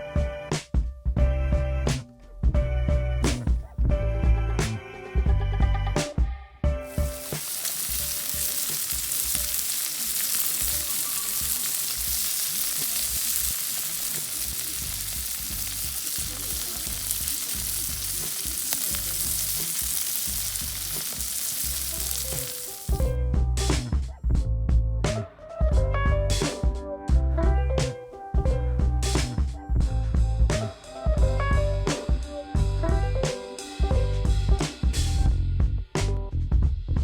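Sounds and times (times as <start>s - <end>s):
food sizzling as it fries: 6.8s - 23.2s.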